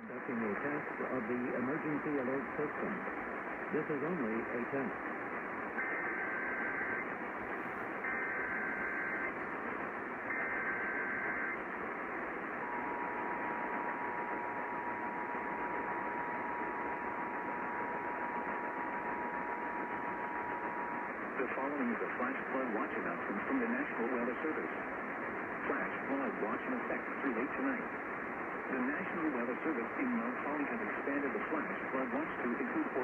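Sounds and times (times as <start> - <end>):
radio hiss: 0.0 - 33.0
two-tone attention signal: 8.0 - 9.3.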